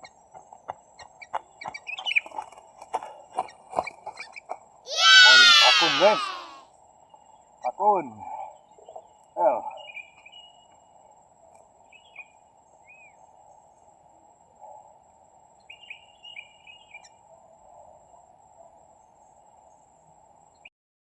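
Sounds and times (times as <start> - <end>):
insect drone: 0.0 - 20.7
faint bird calls: 3.4 - 6.6.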